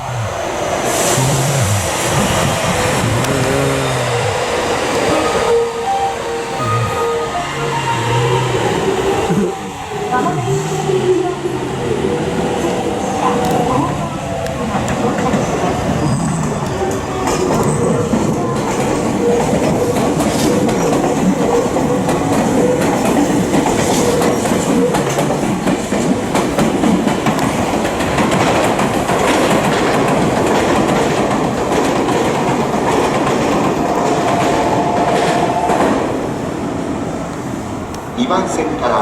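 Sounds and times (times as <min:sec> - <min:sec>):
faint train whine: 0:00.0 - 0:24.8
train wheels clattering over rail joints: 0:14.8 - 0:36.1.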